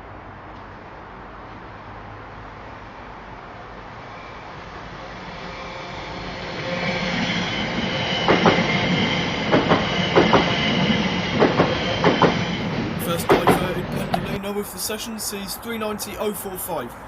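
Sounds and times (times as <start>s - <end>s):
electric train high whine: 0.0s - 17.0s
train wheels clicking over rail joints: 8.2s - 14.4s.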